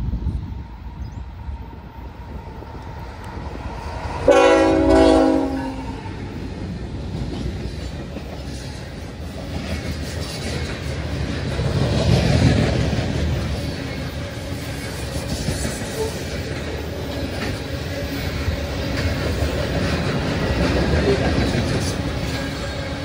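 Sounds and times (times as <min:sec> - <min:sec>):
freight train rumbling by: 0:00.0 - 0:23.0
locomotive horn blast: 0:04.3 - 0:06.2.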